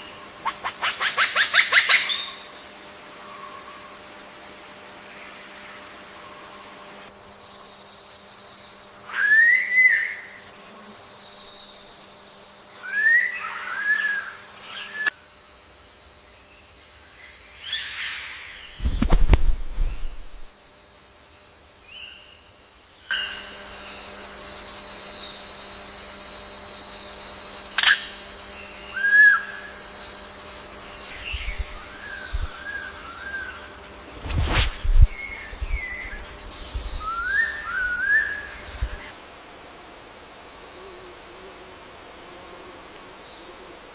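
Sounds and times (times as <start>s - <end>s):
faint steady hum: 0.0s - 43.9s
bird whistled calls: 9.1s - 10.3s, 12.8s - 15.1s, 28.9s - 29.8s, 34.4s - 39.1s
low hum: 18.6s - 20.5s
bird whistling: 36.8s - 39.0s.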